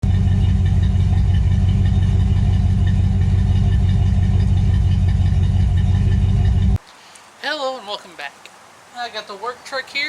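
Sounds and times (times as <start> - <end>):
pickup truck engine idling: 0.0 - 6.8.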